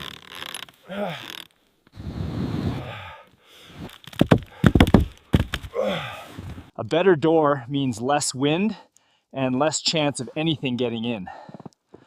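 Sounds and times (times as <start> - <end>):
wood scraping: 3.7 - 5.7
sharp knocks on timber: 4.2 - 5.7.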